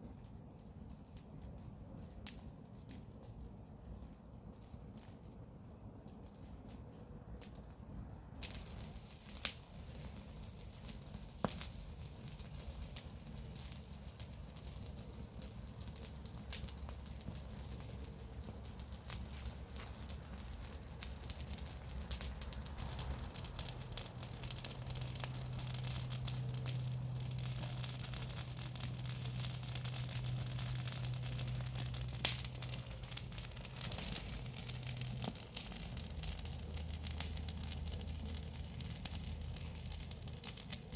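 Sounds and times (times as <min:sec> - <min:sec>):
bonfire crackling: 0:00.0 - 0:40.9
sharp pops of burning twigs: 0:08.4 - 0:40.9
steady low hum: 0:11.7 - 0:40.9.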